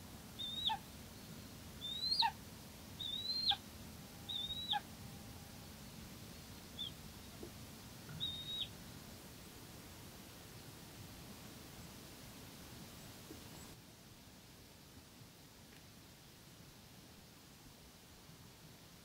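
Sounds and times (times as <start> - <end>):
bird whistled calls: 0.4 - 0.8, 1.8 - 2.4, 3.0 - 3.6, 4.3 - 4.8, 8.2 - 8.7.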